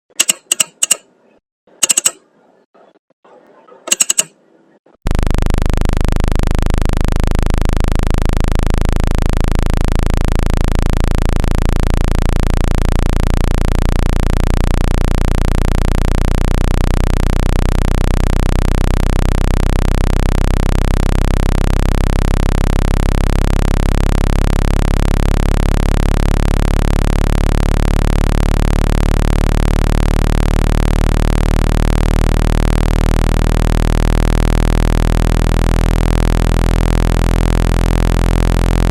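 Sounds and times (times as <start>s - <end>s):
short click: 0.1s - 1.1s, 1.8s - 2.3s, 3.9s - 4.4s
low synthesized drone: 5.1s - 38.9s.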